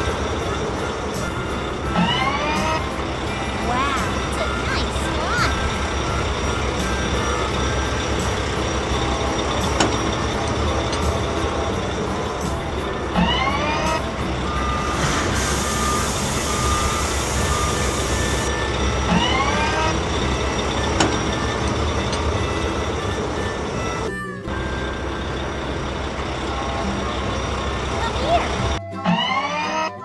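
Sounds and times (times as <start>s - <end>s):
heavy truck engine running: 0.0s - 30.0s
rising whistle-like sweeps: 13.3s - 25.0s
reversing beeps: 13.6s - 23.2s
rushing hiss: 14.9s - 18.4s.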